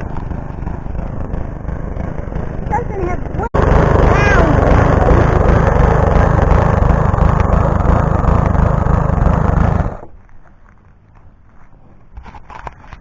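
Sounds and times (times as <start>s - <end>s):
lawnmower engine running: 0.0s - 10.1s.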